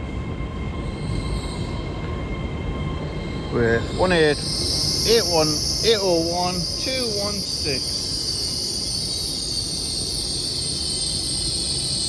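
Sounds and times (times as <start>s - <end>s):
train brakes squealing: 0.0s - 12.0s.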